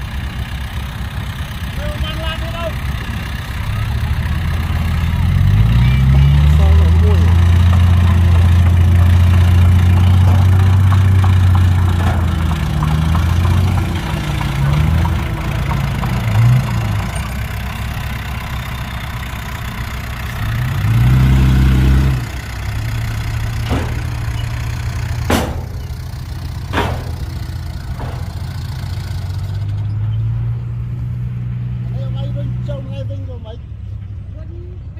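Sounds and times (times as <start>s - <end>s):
heavy diesel engine running: 0.0s - 34.9s
sharp knocks: 23.6s - 29.5s.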